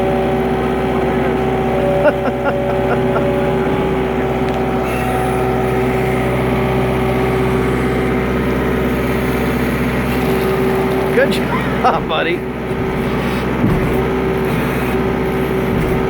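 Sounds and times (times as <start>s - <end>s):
loader engine running: 0.0s - 16.0s.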